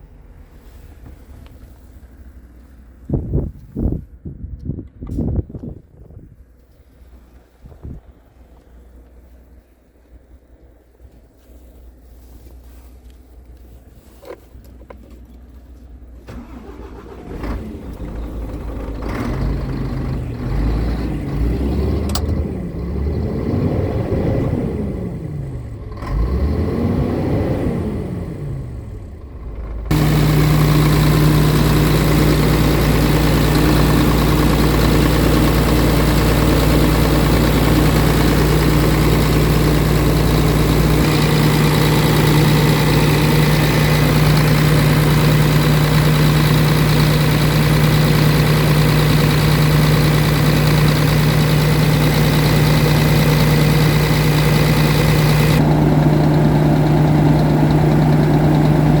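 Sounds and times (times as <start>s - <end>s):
diesel truck engine idling: 15.4s - 23.8s, 28.3s - 59.0s.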